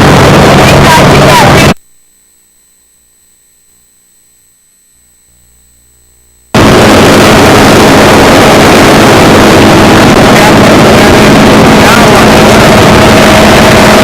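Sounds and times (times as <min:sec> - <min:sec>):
aircraft piston engine running: 0:00.0 - 0:01.8, 0:06.6 - 0:14.0
faint hum: 0:00.0 - 0:14.0.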